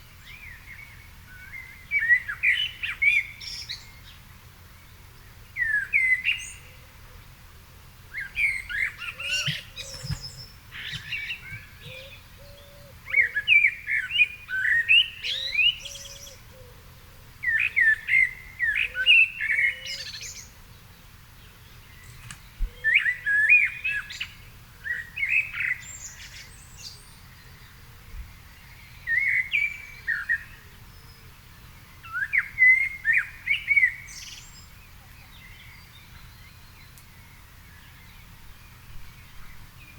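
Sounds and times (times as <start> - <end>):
songbird warbling: 8.1 - 20.6.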